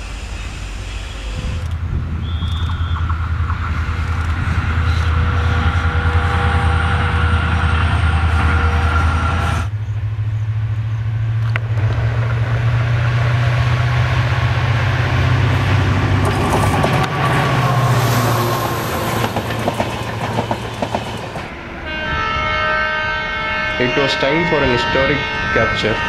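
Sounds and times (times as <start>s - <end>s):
locomotive engine drone: 0.0s - 26.0s
train wheel noise: 0.0s - 26.0s
wheels clacking over rail joints: 11.4s - 21.6s.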